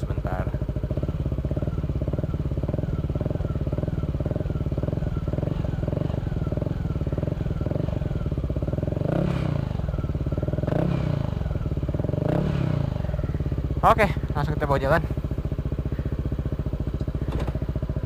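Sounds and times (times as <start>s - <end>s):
scooter engine idling: 0.0s - 18.0s.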